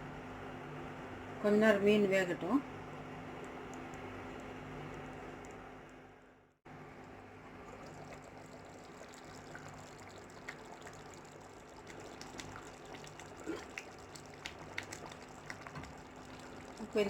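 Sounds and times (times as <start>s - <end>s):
curry bubbling in a pan: 7.0s - 17.0s.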